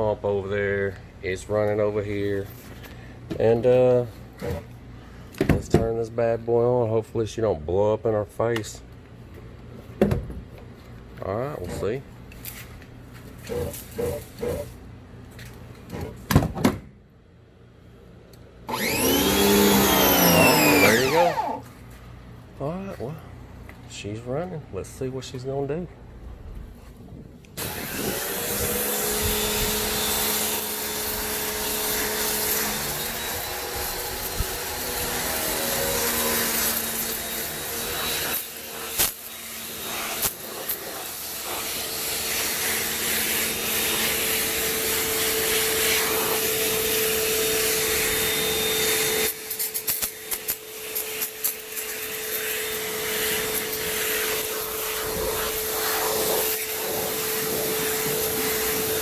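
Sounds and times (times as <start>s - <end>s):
pressure washer motor whine: 18.7s - 21.7s, 27.6s - 59.0s
water spray hissing: 53.1s - 59.0s.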